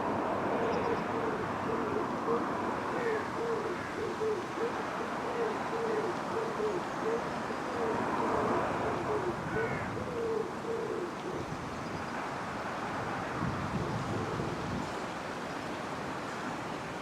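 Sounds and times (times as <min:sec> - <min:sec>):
outdoor background noise: 0:00.0 - 0:17.0
pigeon cooing: 0:00.6 - 0:11.5.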